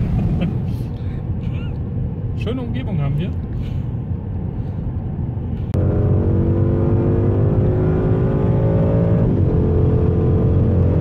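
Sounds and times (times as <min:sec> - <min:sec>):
road rumble: 0:00.0 - 0:11.0
car engine accelerating: 0:05.7 - 0:11.0.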